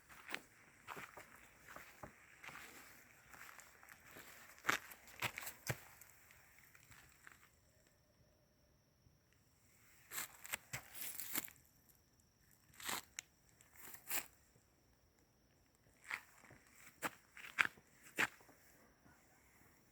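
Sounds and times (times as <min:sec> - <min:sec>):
footsteps crunching on dry leaves: 0:00.1 - 0:06.2, 0:10.1 - 0:11.5.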